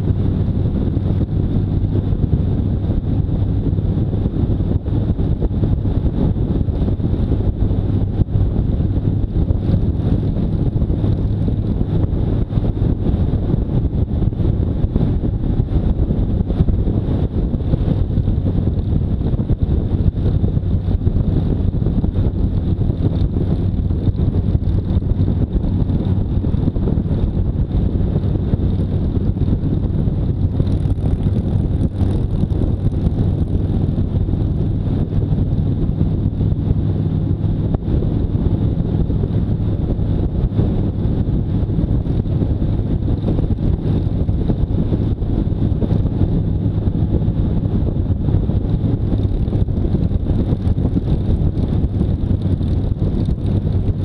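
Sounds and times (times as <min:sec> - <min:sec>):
heavy wind noise on microphone: 0:00.0 - 0:54.0
motorcycle engine running: 0:00.0 - 0:54.0.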